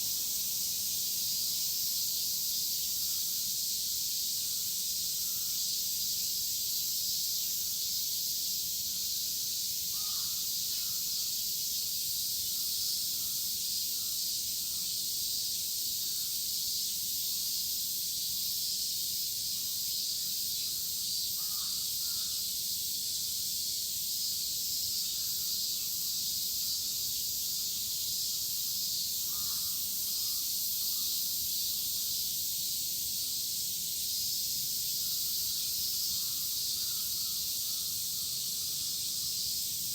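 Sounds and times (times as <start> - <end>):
cicadas chorus: 0.0 - 39.9
crows cawing: 9.9 - 10.4, 21.4 - 22.3, 29.3 - 29.8.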